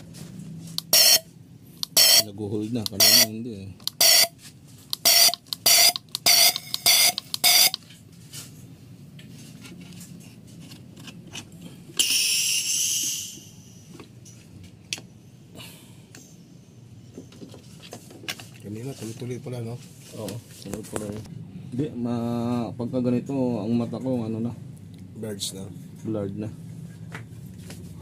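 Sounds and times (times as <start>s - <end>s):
low steady hum: 0.0s - 28.0s
short electronic beeps: 0.8s - 2.3s, 2.9s - 3.3s, 3.9s - 4.4s, 5.0s - 7.8s.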